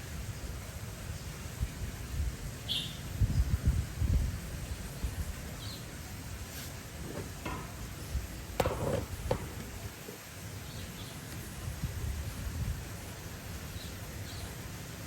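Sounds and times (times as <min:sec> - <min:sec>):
strong wind: 0:00.0 - 0:10.0, 0:11.4 - 0:13.7
faint bird chirps: 0:02.7 - 0:03.5
sharp knocks: 0:07.1 - 0:09.8.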